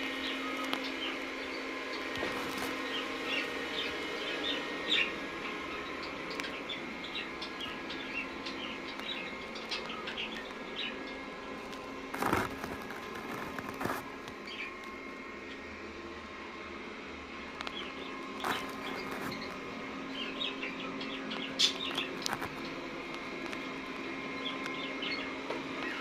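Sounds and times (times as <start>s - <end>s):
rustling: 11.7s - 14.4s, 18.4s - 19.6s
parrots chirping: 17.8s - 22.7s.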